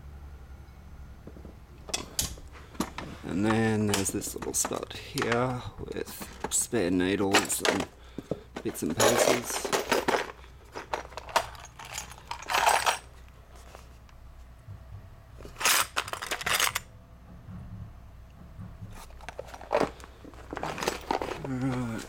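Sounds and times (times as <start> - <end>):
small metal parts rattling: 1.9 - 13.2, 15.4 - 16.9, 19.0 - 22.0.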